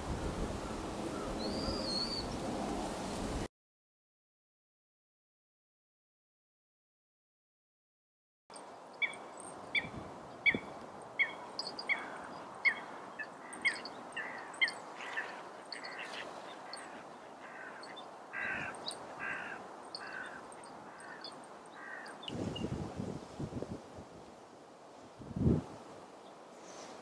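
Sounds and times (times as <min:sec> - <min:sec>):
bird calling: 0:00.7 - 0:02.4, 0:09.0 - 0:22.7.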